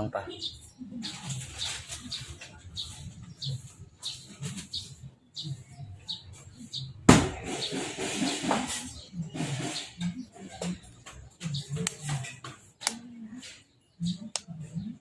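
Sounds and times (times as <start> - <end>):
small bird chirping: 0.0 - 15.0
sharp loud knock: 7.1 - 8.7.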